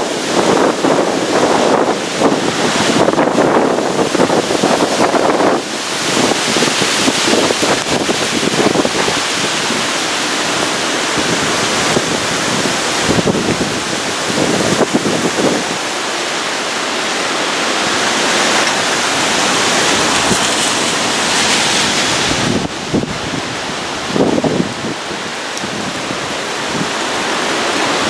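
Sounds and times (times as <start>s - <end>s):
hurricane wind roaring: 0.0s - 28.0s
wind gusts buffeting microphone: 0.0s - 28.0s.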